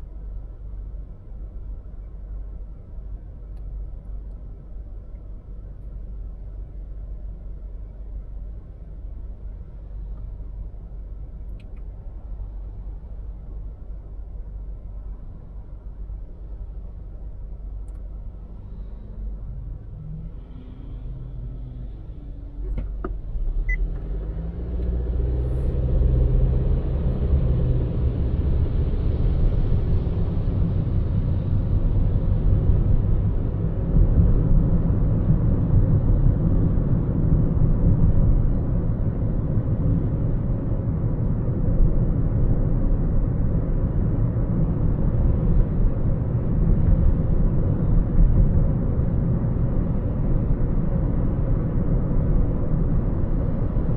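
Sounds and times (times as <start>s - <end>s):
car engine and tyre noise: 0.0s - 53.9s
click: 11.5s - 11.9s, 17.8s - 18.1s.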